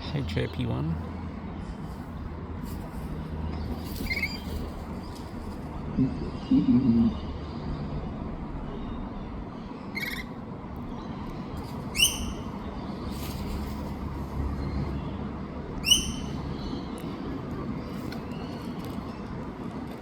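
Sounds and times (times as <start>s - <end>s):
low background rumble: 0.0s - 20.0s
bird calling: 5.9s - 7.4s, 9.8s - 10.4s, 11.6s - 13.5s, 15.8s - 17.0s.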